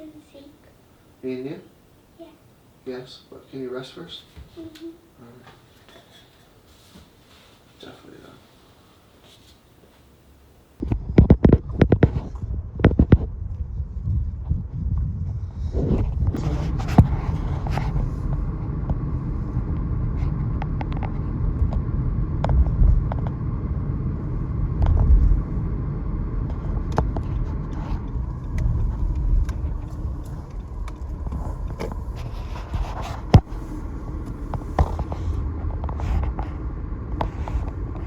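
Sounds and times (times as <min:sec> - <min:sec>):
moving car rumble: 0:10.2 - 0:38.0.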